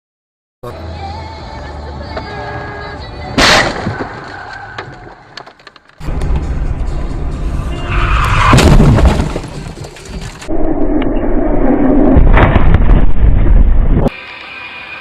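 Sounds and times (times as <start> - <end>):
music playing: 0.6 - 3.4, 6.0 - 8.5
loud crash impact: 3.4 - 4.2, 8.3 - 10.3.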